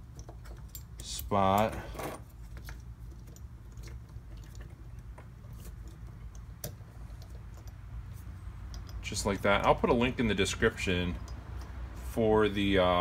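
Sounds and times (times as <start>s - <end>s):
small metal parts clicking: 0.0s - 11.8s.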